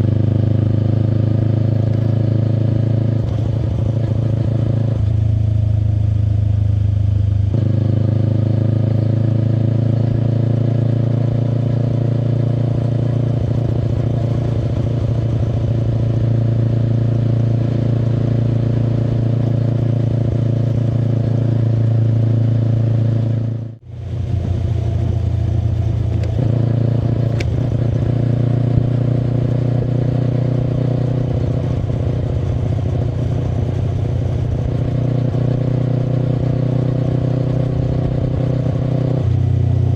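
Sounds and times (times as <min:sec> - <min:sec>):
motorcycle exhaust running: 0:00.0 - 0:39.9.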